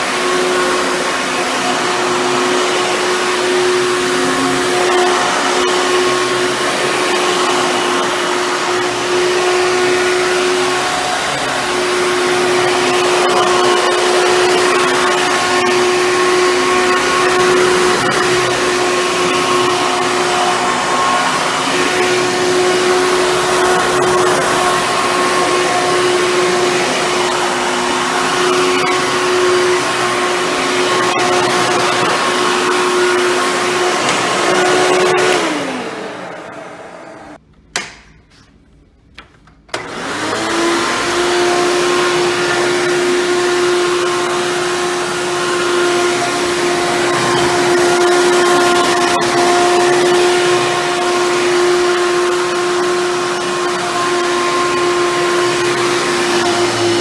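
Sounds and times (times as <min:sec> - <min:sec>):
vacuum cleaner motor whine: 0:00.0 - 0:37.4, 0:39.6 - 0:57.0
switch click: 0:37.6 - 0:38.2.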